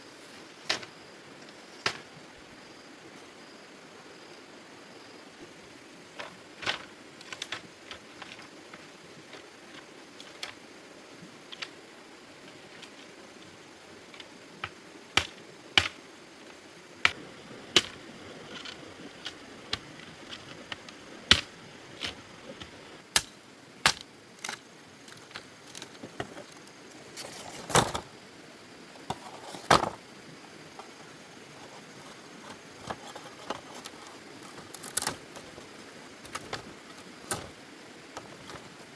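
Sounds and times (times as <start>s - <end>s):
faint steady hiss: 0.0s - 38.9s
sharp clicks and knocks: 30.8s - 37.6s.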